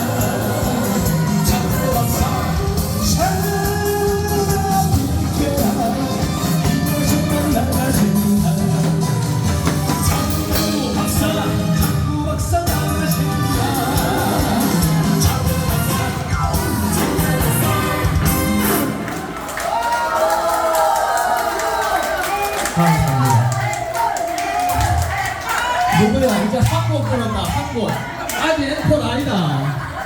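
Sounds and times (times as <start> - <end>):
man singing live: 0.0 - 18.8
loud backing music: 0.0 - 19.7, 22.8 - 30.0.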